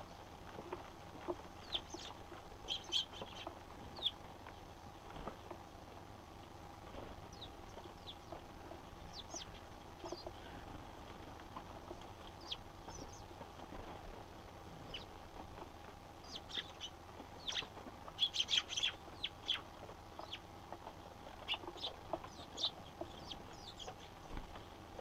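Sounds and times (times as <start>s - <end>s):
sparrows chirping: 1.5s - 4.8s, 7.3s - 10.6s, 12.2s - 13.4s, 14.8s - 15.2s, 16.2s - 24.4s.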